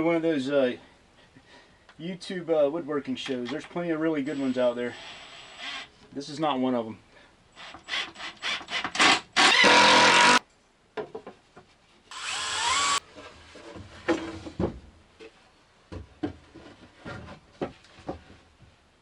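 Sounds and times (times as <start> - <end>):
power drill running: 7.6 - 10.4, 12.1 - 13.0.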